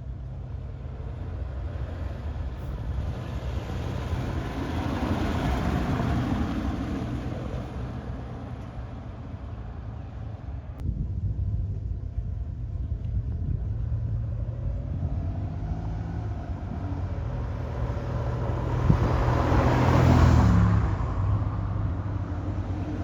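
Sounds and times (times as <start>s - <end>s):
steady low rumble: 0.0s - 19.3s
car driving past: 14.0s - 23.0s.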